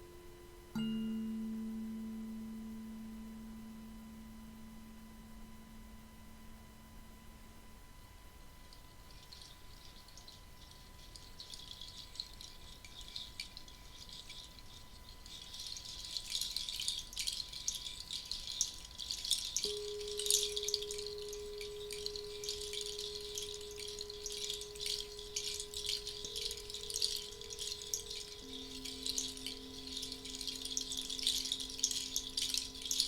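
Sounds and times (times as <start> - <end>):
pure steady tone: 0.0 - 33.0
hand rattle shaking: 8.7 - 33.0.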